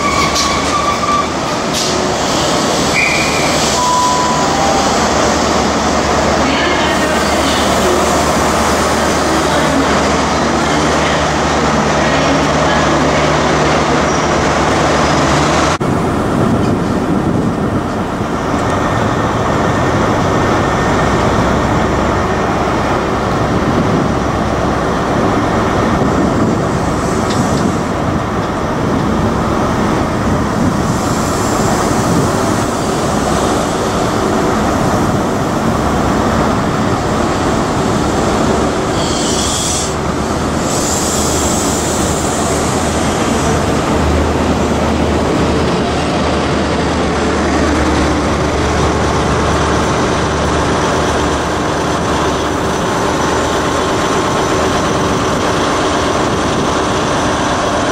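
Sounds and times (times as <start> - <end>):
diesel train running: 0.0 - 57.9
brief high-pitched sounds: 3.0 - 5.8.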